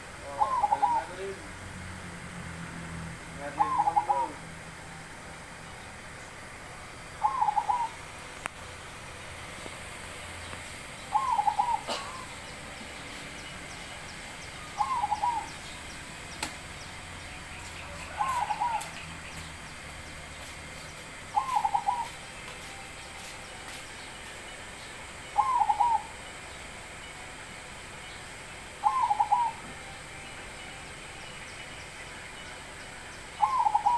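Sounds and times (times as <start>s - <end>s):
dove cooing: 0.2s - 1.5s, 3.4s - 4.5s, 7.2s - 8.2s, 11.0s - 14.0s, 14.7s - 15.8s, 17.6s - 19.0s, 21.3s - 22.8s, 25.3s - 26.4s, 28.8s - 30.1s, 33.3s - 33.9s.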